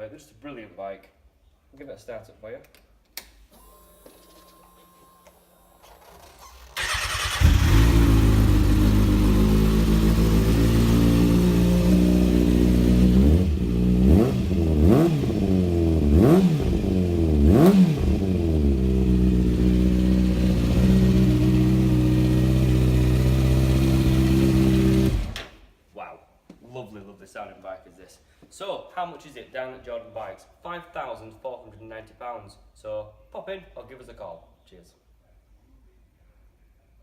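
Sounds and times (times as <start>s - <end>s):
motorcycle engine idling and revving: 6.8s - 25.4s.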